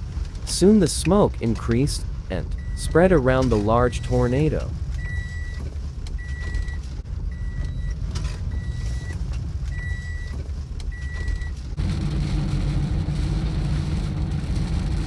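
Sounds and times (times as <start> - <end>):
remote controller beeping: 2.6 - 5.6.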